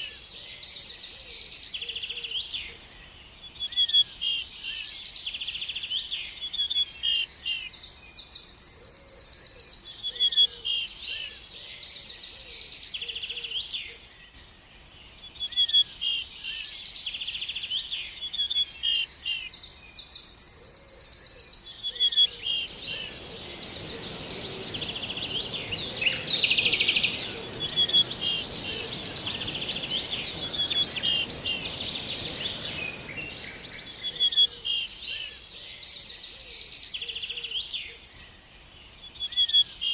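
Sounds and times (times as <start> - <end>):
songbird chirping and trilling: 21.5 - 36.5
steady high hiss: 22.2 - 35.1
soft background rush: 22.4 - 34.4.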